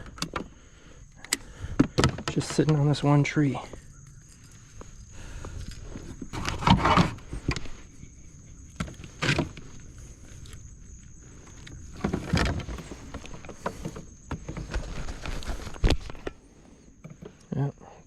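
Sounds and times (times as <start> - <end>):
knocks and rustles against kayak hull: 1.6 - 3.1, 11.3 - 16.4.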